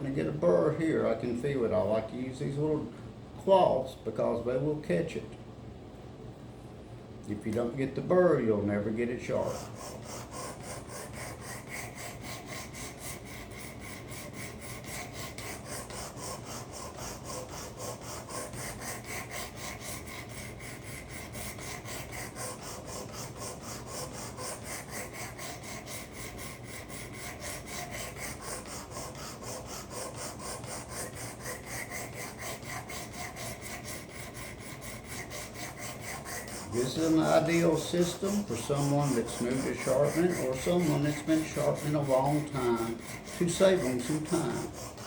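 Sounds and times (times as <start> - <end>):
sharpening stone rasping on blade: 26.9 - 45.0.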